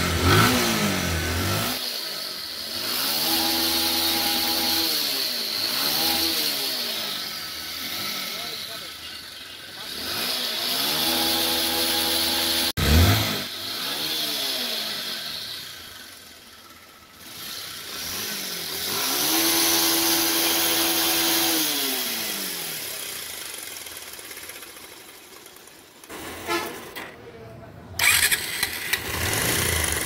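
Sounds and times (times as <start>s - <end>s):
motorcycle engine revving roughly: 0.0s - 26.7s, 28.0s - 30.0s.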